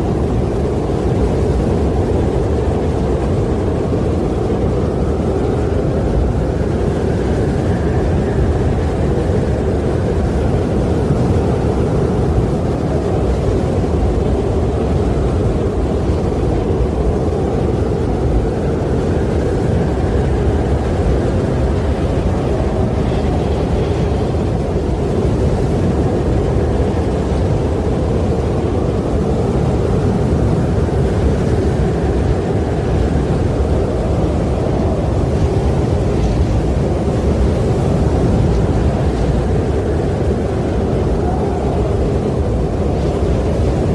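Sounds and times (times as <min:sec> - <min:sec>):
wind blowing: 0:00.0 - 0:43.9.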